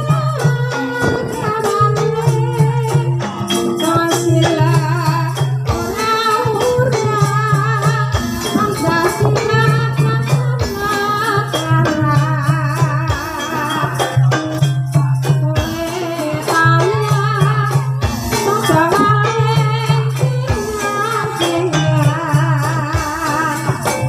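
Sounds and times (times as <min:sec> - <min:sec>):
gamelan-style percussion: 0:00.0 - 0:24.0
person singing wavering melody: 0:00.0 - 0:24.0
low tone: 0:00.6 - 0:03.1.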